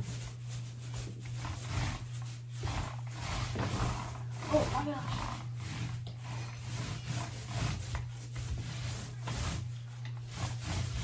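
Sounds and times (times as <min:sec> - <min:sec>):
paint roller swishing on wall: 0:00.0 - 0:11.0.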